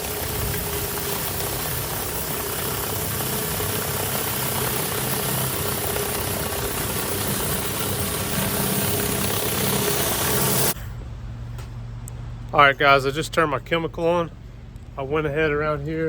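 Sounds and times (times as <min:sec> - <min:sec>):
pressure washer engine drone: 0:00.0 - 0:10.8.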